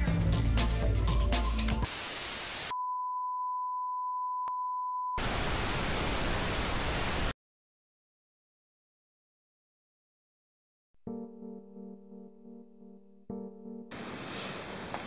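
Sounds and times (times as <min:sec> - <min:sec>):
background music: 0:00.0 - 0:01.9, 0:11.1 - 0:13.9
static hiss: 0:01.9 - 0:02.7, 0:05.2 - 0:07.3, 0:13.9 - 0:15.0.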